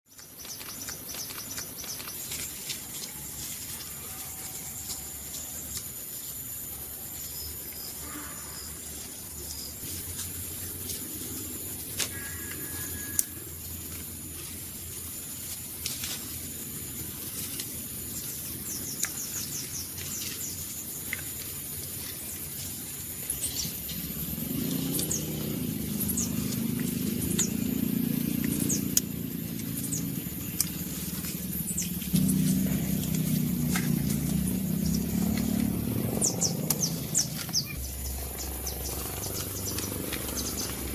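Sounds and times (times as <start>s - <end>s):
high-pitched insect drone: 2.7s - 9.8s, 10.4s - 15.3s, 22.7s - 40.9s
low drone: 22.8s - 40.9s
bird chirps: 23.3s - 40.9s.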